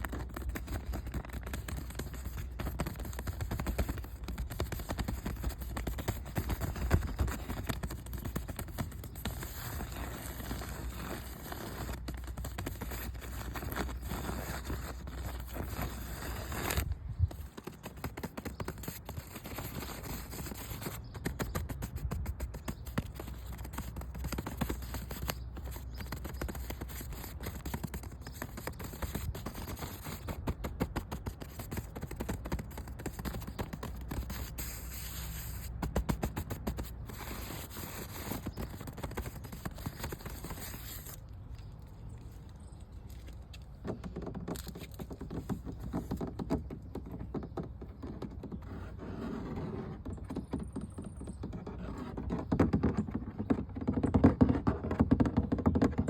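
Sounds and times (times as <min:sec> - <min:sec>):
rubbing strokes: 0:00.0 - 0:41.2
scratching and tapping on surface: 0:00.0 - 0:41.7, 0:43.0 - 0:56.0.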